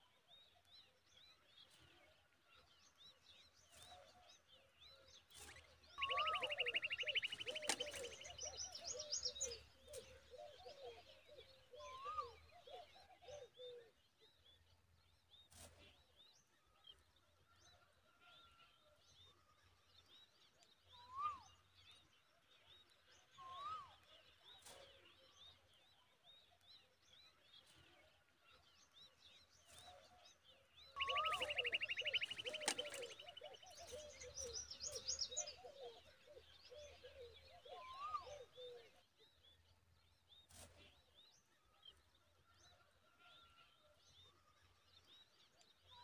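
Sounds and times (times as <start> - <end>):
nestlings chirping: 6.0 - 8.5, 31.0 - 33.5
rising and falling bird whistle: 6.0 - 8.6, 31.0 - 33.5.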